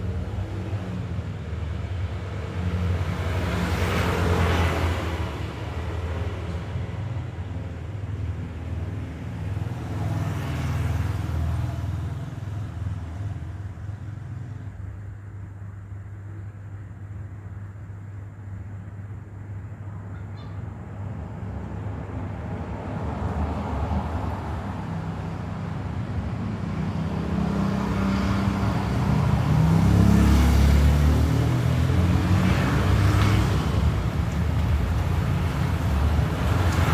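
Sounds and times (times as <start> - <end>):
vehicle passing by: 0.0 - 7.3, 8.7 - 13.6, 21.4 - 36.9
low traffic rumble: 0.0 - 36.9
road and tyre noise: 0.0 - 36.9.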